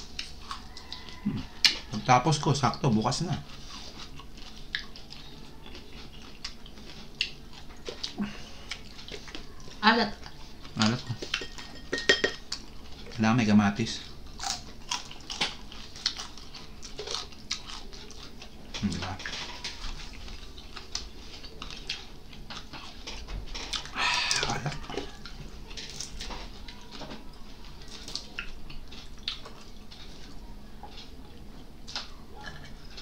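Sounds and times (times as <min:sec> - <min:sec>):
chewing with wet clicks: 0:00.0 - 0:13.2, 0:13.9 - 0:33.0.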